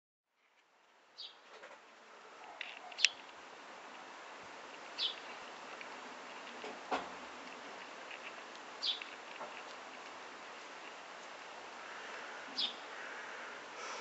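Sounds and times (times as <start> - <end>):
outdoor background hiss: 0.3 - 14.0
high bird chirps: 5.0 - 5.3, 8.8 - 9.1, 12.6 - 12.8.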